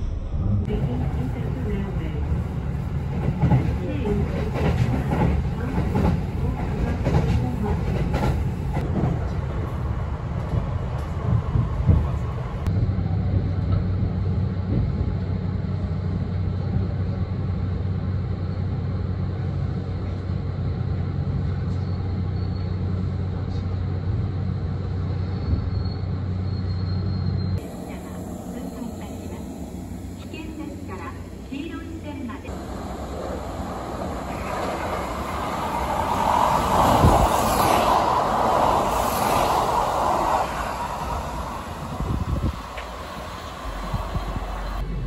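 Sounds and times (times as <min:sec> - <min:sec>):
train wheels rumbling on rail: 0:00.6 - 0:45.0
steady low hum: 0:27.6 - 0:34.6.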